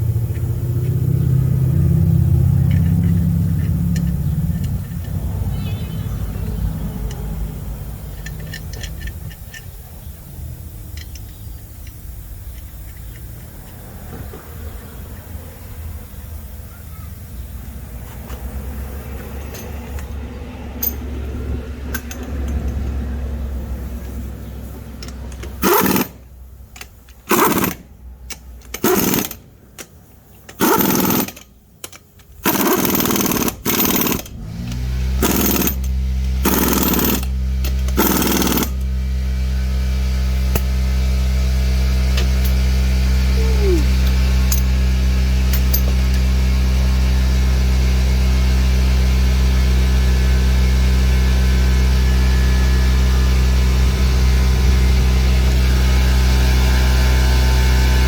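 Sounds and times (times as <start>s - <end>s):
impact wrench hammering: 25.5s - 26.2s, 27.1s - 29.9s, 30.5s - 38.9s, 45.5s - 46.3s.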